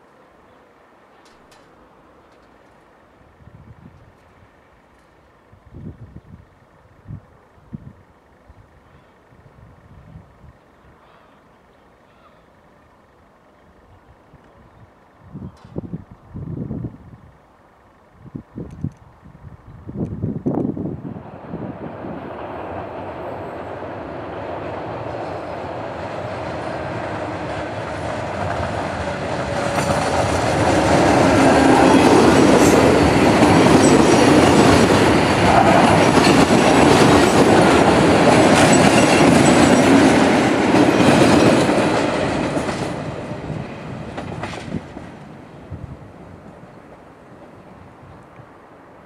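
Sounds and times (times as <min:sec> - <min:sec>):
passenger train passing: 0:00.0 - 0:11.0, 0:11.9 - 0:49.0
wheels clicking over rail joints: 0:01.1 - 0:03.2, 0:27.4 - 0:45.4.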